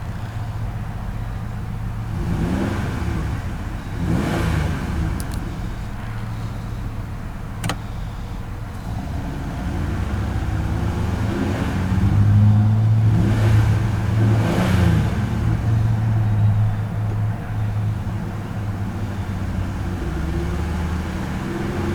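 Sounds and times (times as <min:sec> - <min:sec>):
vehicle engine hum: 0:00.0 - 0:21.9
sharp click: 0:07.6 - 0:07.9.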